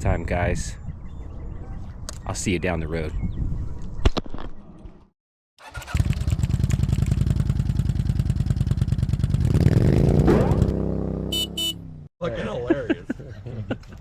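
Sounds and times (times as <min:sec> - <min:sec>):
motorcycle engine running: 0:05.6 - 0:11.8.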